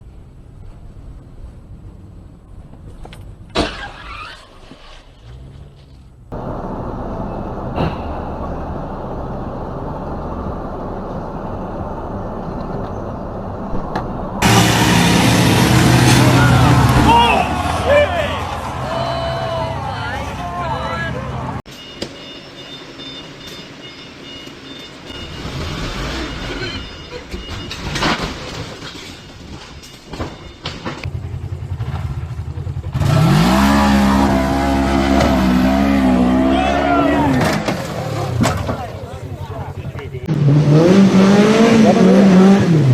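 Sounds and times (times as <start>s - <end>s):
vehicle running noise: 0.0s - 42.9s
engine revving: 14.4s - 19.0s, 25.1s - 26.9s, 31.0s - 38.8s, 40.2s - 42.9s.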